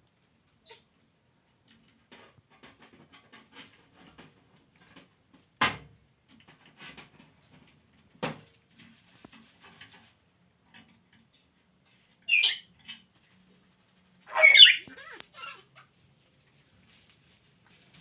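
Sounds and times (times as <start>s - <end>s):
parrot squawking: 14.3s - 15.8s.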